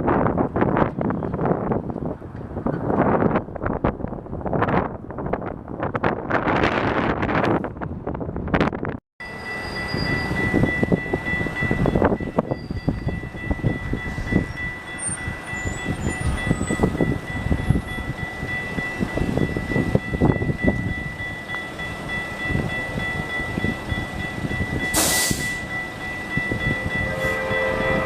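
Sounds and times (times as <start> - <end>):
train wheels rumbling on rail: 0.0 - 28.0
high ringing tone: 9.2 - 28.0
short hiss: 25.0 - 25.6
train horn: 26.7 - 28.0.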